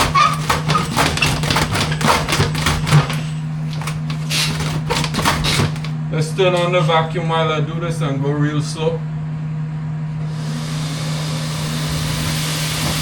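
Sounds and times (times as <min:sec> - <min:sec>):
brush knocking and rattling in duct: 0:00.0 - 0:06.0
steady motor hum: 0:00.0 - 0:13.0.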